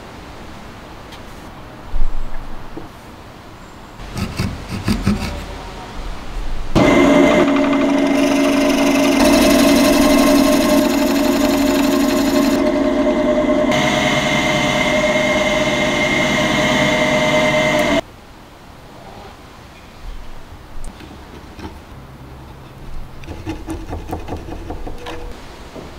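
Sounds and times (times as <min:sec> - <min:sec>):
electric power tool motor running: 0:06.8 - 0:18.0.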